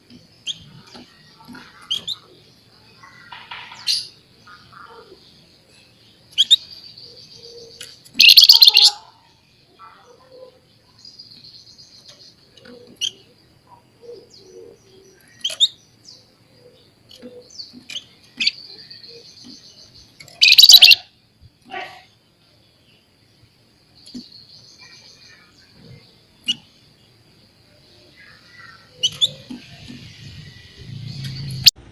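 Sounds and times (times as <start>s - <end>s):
bird buzzing trills: 8.2s - 8.9s, 20.4s - 21.0s
harsh bird chattering: 8.2s - 9.0s, 20.3s - 21.1s, 28.9s - 29.8s
short sharp bird notes: 20.4s - 21.0s.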